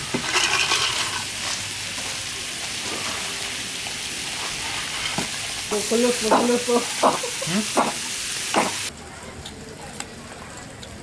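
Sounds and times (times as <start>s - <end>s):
steady hissing noise: 5.6s - 8.9s.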